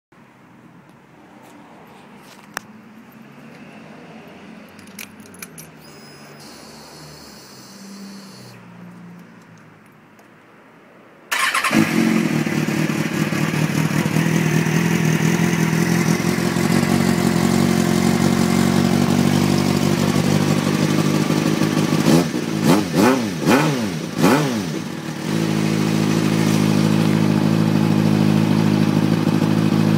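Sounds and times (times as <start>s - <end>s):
motorcycle engine starting and idling: 4.7s - 8.6s, 11.3s - 29.9s
motorcycle engine revving: 11.3s - 29.9s.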